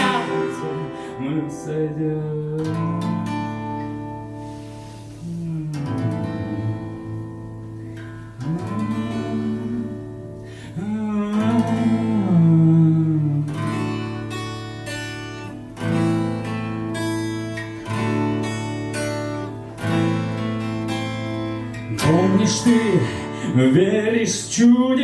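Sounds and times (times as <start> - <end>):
person singing wordless melody: 0.0 - 4.2, 5.0 - 7.6, 8.3 - 14.2, 21.7 - 25.0
acoustic guitar strumming: 0.0 - 25.0.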